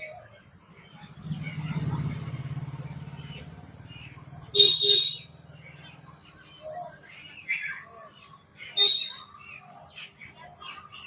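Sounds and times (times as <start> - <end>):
faint bird chirps: 0.0 - 11.0
loud two-part bird call: 8.7 - 9.3.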